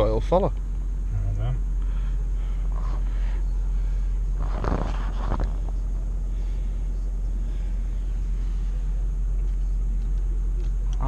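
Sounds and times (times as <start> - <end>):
car driving rumble from inside: 0.0 - 11.0
rustling clatter: 3.9 - 6.6.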